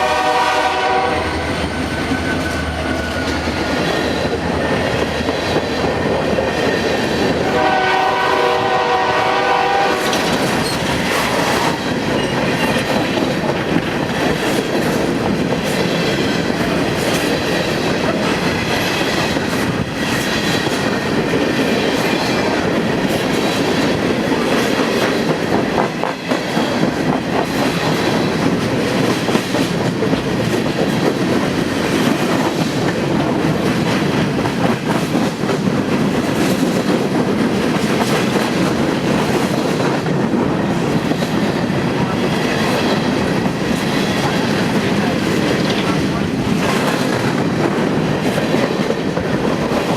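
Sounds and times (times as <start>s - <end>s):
train air horn: 0.0s - 1.6s, 7.4s - 10.3s
train wheels clacking on rails: 0.0s - 49.9s.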